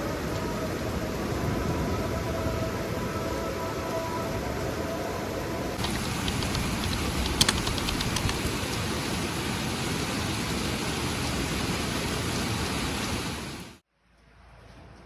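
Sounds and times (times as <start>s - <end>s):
rain falling: 0.0s - 13.8s
sharp drip taps: 5.8s - 8.4s.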